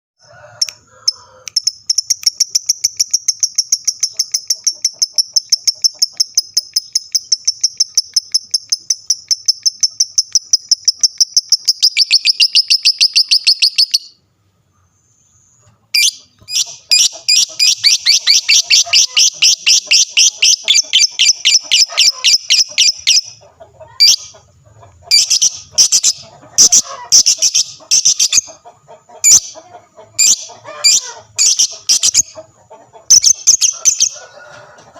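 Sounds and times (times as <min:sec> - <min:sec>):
lovebird trilling high chirps: 0:01.6 - 0:14.2, 0:16.0 - 0:23.3, 0:25.1 - 0:28.5, 0:30.2 - 0:32.4, 0:33.1 - 0:34.2.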